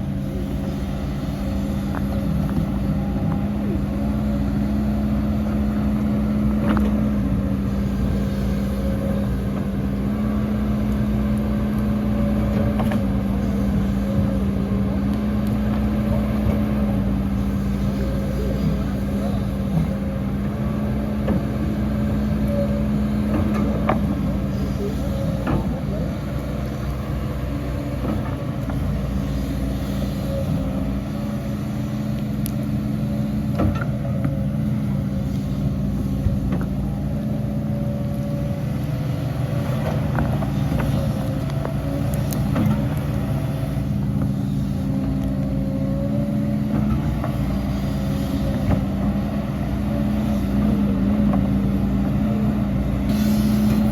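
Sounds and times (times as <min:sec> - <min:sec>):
heavy machinery diesel engine: 0:00.0 - 0:53.9.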